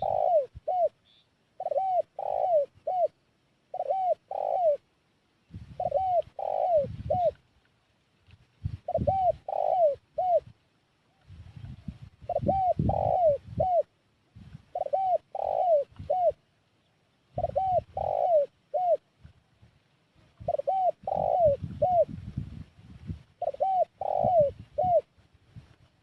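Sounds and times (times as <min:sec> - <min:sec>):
dove cooing: 0:00.0 - 0:04.9, 0:05.7 - 0:07.4, 0:08.7 - 0:14.0, 0:14.7 - 0:16.5, 0:17.3 - 0:19.1, 0:20.4 - 0:22.2, 0:23.4 - 0:25.2.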